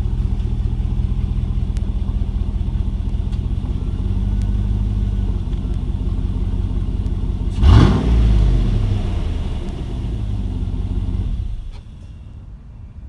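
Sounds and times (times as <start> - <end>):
truck engine idling: 0.0 - 12.5
truck engine revving: 3.6 - 11.8.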